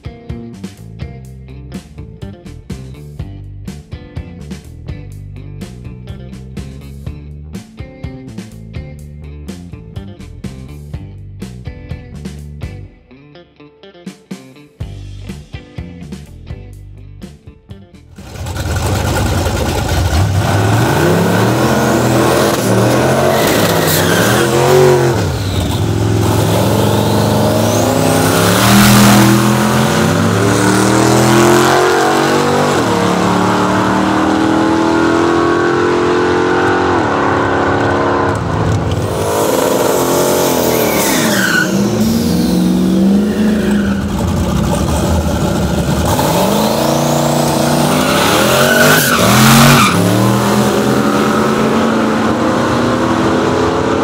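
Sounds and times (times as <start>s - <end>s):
car engine at full throttle: 18.2s - 54.0s.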